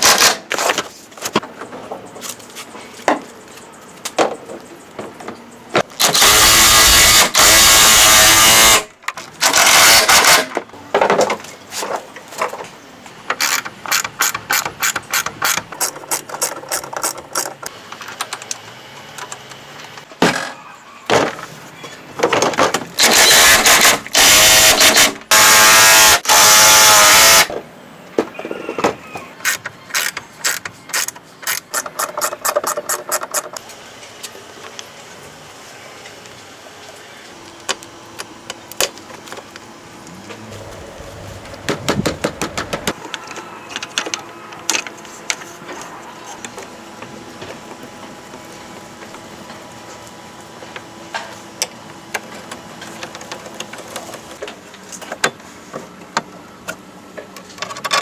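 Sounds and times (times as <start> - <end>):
power tool bursts: 6.0 - 10.5, 23.0 - 27.5.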